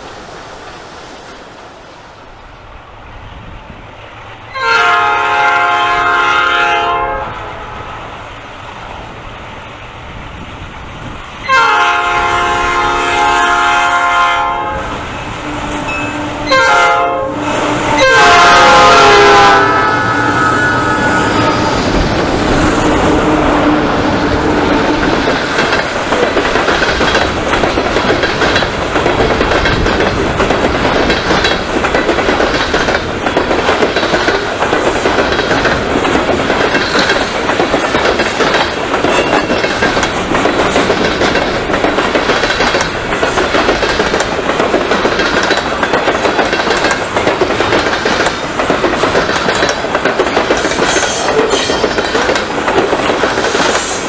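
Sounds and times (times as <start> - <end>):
locomotive horn tone: 4.5 - 8.0, 11.4 - 25.1
train wheels clicking over rail joints: 21.5 - 54.0.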